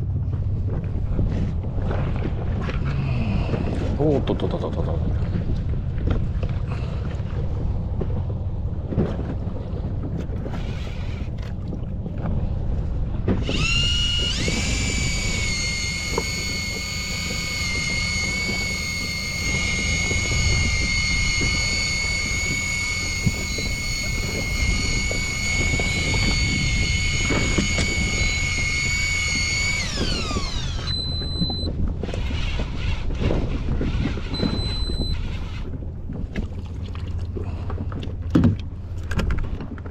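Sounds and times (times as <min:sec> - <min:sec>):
water rumble: 0:00.0 - 0:39.9
wind: 0:00.0 - 0:39.9
fishing reel motor whining: 0:10.4 - 0:11.6, 0:13.4 - 0:35.8
short high beeps: 0:30.8 - 0:31.7, 0:34.3 - 0:35.2.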